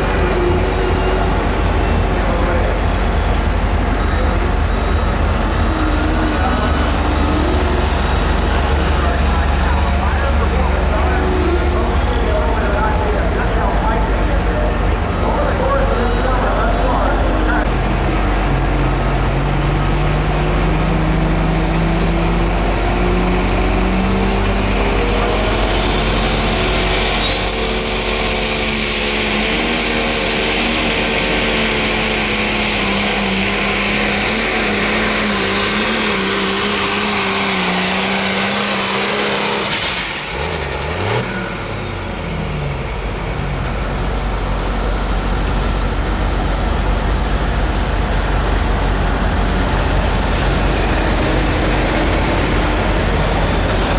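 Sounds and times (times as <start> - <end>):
diesel tractor engine at full throttle: 0.0 - 53.9
turbo whistle: 26.7 - 29.6.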